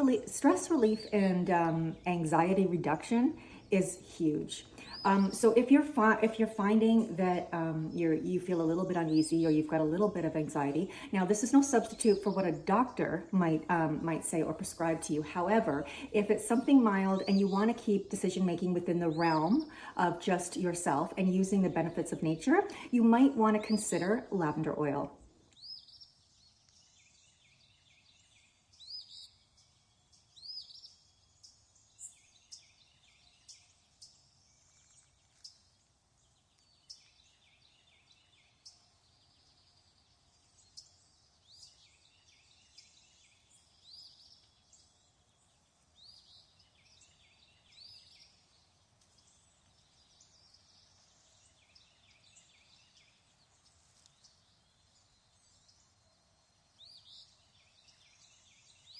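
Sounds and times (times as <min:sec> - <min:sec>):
low steady hiss: 0:00.0 - 0:58.9
birds chirping and singing: 0:25.5 - 0:58.9.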